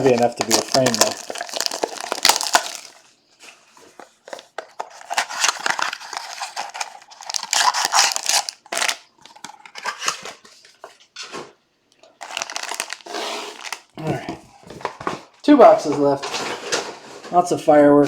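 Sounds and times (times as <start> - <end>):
wrapper crinkling and tearing: 0.0 - 3.1, 3.8 - 10.5, 12.2 - 14.2.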